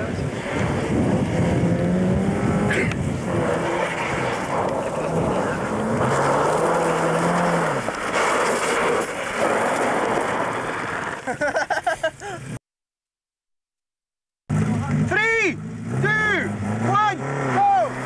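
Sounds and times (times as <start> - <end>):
car engine revving: 0.0 - 11.1, 14.5 - 18.0
tyres scrabbling on gravel: 3.3 - 11.5
stones spraying: 5.7 - 11.4.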